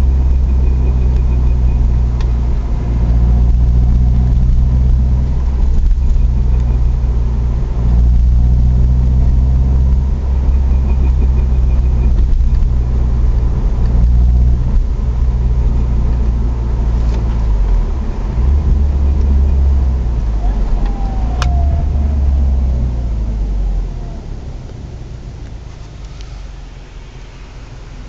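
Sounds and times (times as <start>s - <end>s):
drivetrain squeaking: 0.0s - 23.5s
car engine low rumble: 0.0s - 28.0s.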